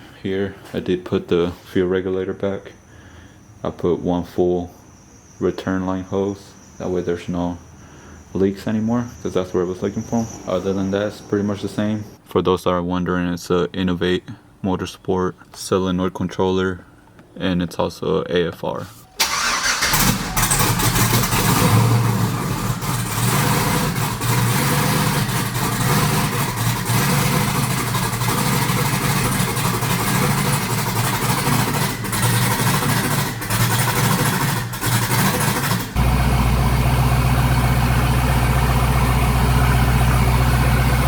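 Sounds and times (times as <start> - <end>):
truck engine accelerating: 19.2 - 41.0.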